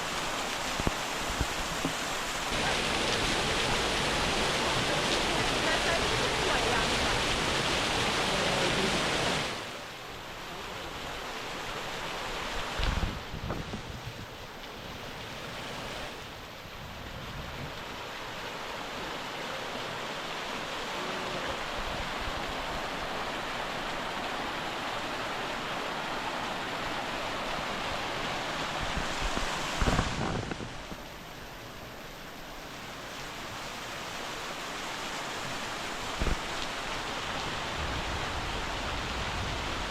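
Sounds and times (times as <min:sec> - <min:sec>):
waterfall rushing: 0:00.0 - 0:13.3, 0:17.8 - 0:39.9.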